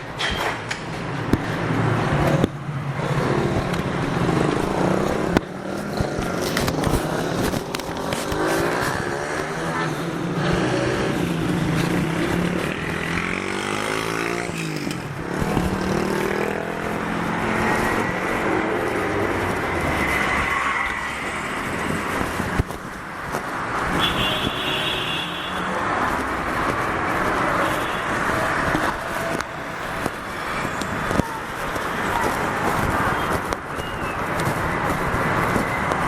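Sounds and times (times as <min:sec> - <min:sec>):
steady traffic noise: 0:00.0 - 0:36.0.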